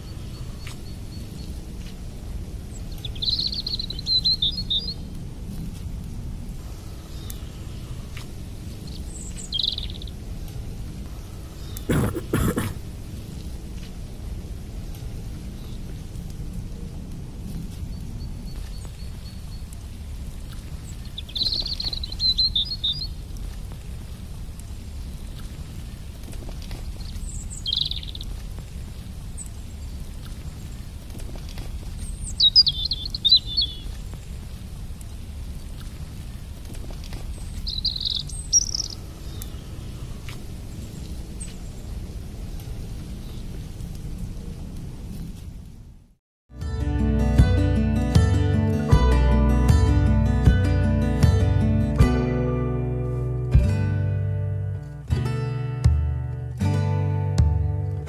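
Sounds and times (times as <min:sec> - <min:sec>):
low outdoor rumble: 0:00.0 - 0:46.2
bird chirp: 0:02.7 - 0:05.1, 0:08.7 - 0:10.2, 0:20.8 - 0:23.2, 0:26.9 - 0:28.3, 0:31.9 - 0:34.0, 0:37.2 - 0:40.0
buzzy bird trill: 0:08.8 - 0:10.2, 0:21.1 - 0:23.1, 0:27.3 - 0:28.2, 0:37.6 - 0:39.0
bird warbling: 0:37.6 - 0:39.0.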